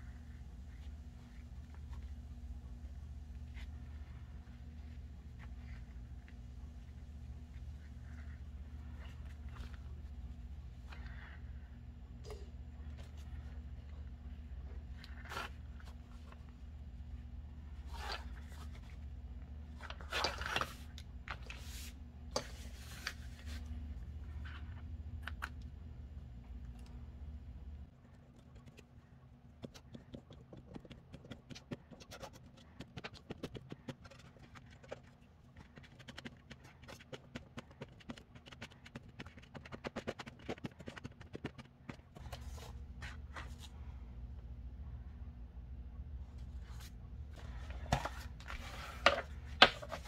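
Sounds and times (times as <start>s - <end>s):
paper rustling and crinkling: 46.5s - 50.0s.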